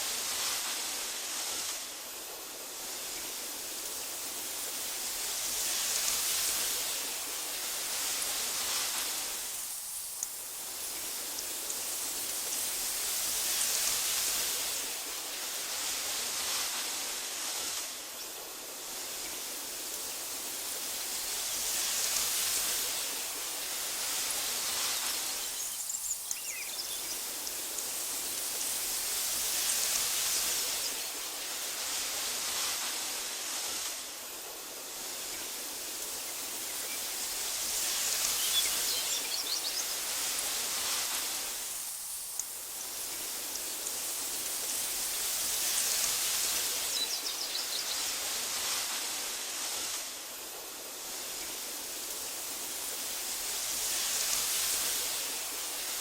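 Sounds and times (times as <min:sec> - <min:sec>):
wind through tall grass: 0:00.0 - 0:56.0
faint bird chirps: 0:24.9 - 0:28.4, 0:38.0 - 0:40.2, 0:46.7 - 0:48.1.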